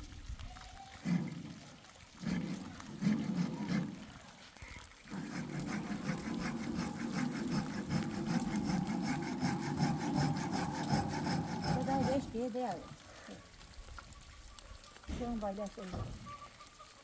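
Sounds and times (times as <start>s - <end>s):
hand saw sawing wood: 1.0s - 4.2s, 5.0s - 12.8s.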